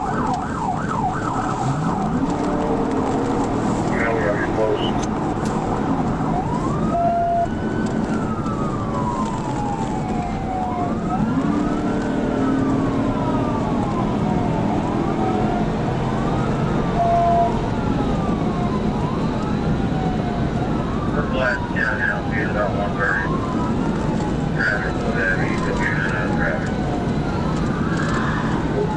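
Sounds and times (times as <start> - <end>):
police siren wailing: 0.0 - 28.9
road and engine noise: 0.0 - 28.9.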